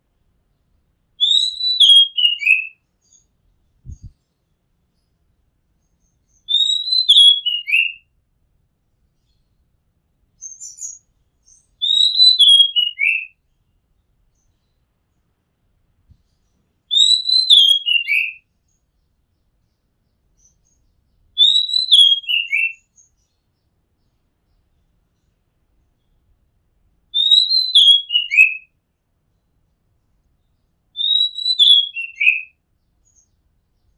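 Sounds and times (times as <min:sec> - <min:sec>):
faint high bird chirp: 0:00.4 - 0:08.1, 0:09.0 - 0:15.4, 0:16.1 - 0:33.9
bird whistling song: 0:01.2 - 0:04.2, 0:05.9 - 0:08.1, 0:10.4 - 0:13.4, 0:16.9 - 0:18.4, 0:20.4 - 0:23.3, 0:27.1 - 0:28.7, 0:31.0 - 0:33.9.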